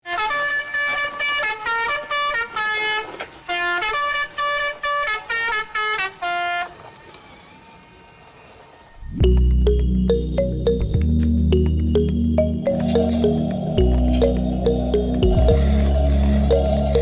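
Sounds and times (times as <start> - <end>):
musical horn playing buzzy tune: 0.0 - 6.8, 12.4 - 17.0.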